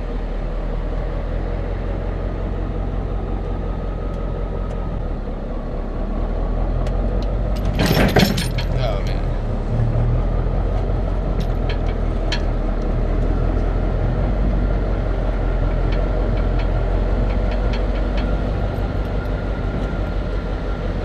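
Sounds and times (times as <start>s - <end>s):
vehicle engine running: 0.0s - 21.0s
light clicks and rattles: 7.2s - 9.2s, 10.8s - 12.9s, 15.5s - 20.1s.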